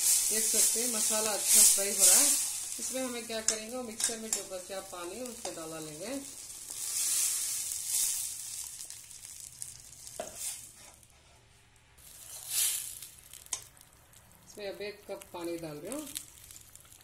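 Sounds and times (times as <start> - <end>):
steel spoon stirring: 0.0 - 5.6, 6.2 - 9.0, 12.0 - 13.8
spices sizzling in hot oil: 0.0 - 11.2, 12.0 - 17.0.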